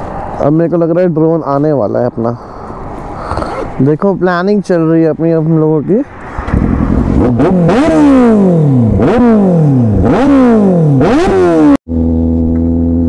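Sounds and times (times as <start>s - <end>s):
motorcycle engine revving: 6.3s - 13.0s.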